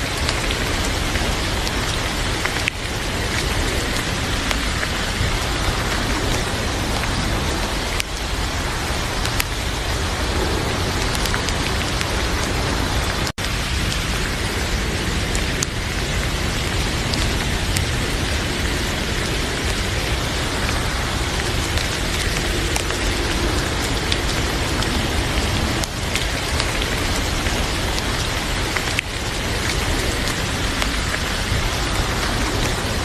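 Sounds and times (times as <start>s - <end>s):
heavy rain hissing: 0.0s - 33.0s.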